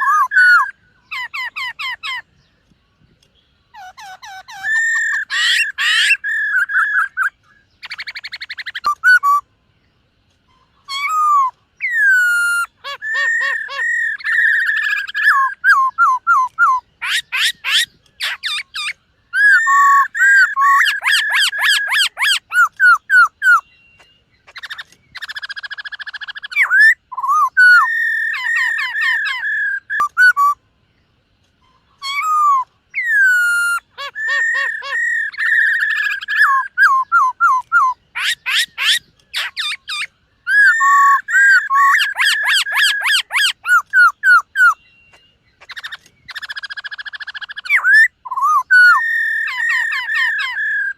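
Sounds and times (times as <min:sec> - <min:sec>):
bird singing whistled phrases: 0:00.0 - 0:02.2, 0:03.7 - 0:09.4, 0:10.8 - 0:30.6, 0:32.0 - 0:50.9.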